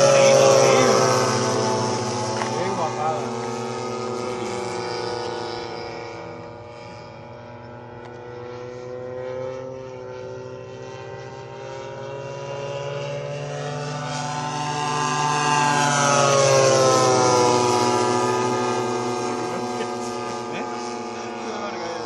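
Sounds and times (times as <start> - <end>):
model airplane engines in flight: 0.0 - 22.0.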